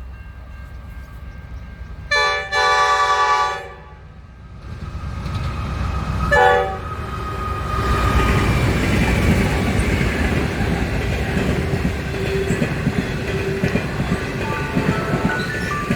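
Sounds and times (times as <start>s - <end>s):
low rumble of train: 0.0s - 15.9s
train horn blasts: 2.1s - 4.2s, 6.3s - 7.0s.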